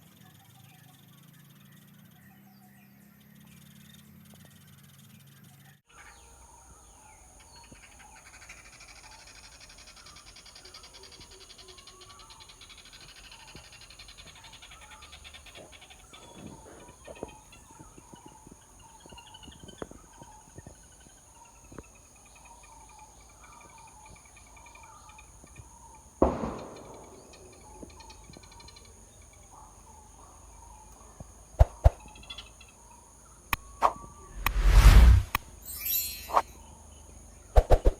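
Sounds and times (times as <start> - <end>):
small bird chirps: 0.0 - 37.9
insect buzzing: 31.5 - 36.7
loud thump: 34.3 - 35.4.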